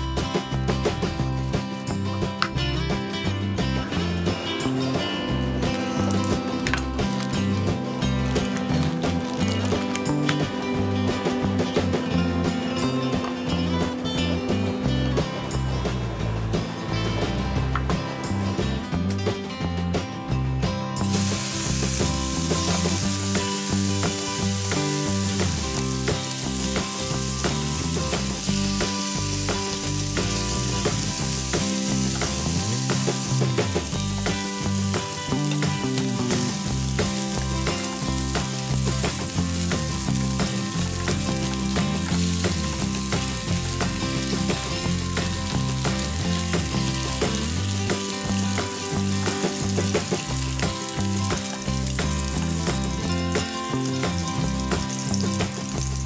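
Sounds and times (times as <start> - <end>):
fat crackling and popping: 3.9 - 12.2, 21.0 - 56.0
bacon sizzling in a frying pan: 5.6 - 10.5, 21.0 - 56.0.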